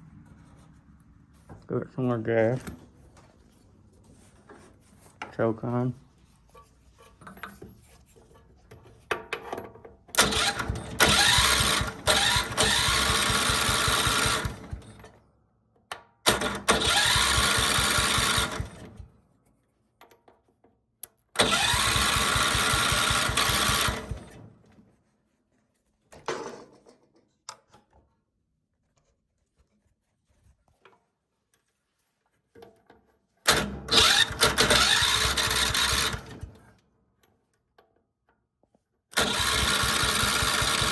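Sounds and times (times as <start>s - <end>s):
lawn tractor engine cranking: 10.1s - 15.2s, 16.3s - 19.1s, 21.3s - 24.6s, 33.4s - 36.8s, 39.1s - 40.9s.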